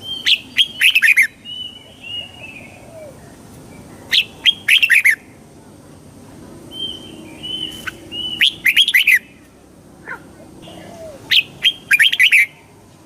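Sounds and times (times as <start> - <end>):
bird warbling: 6.7 - 9.4, 10.0 - 12.6
soft bird whistles: 10.7 - 12.6.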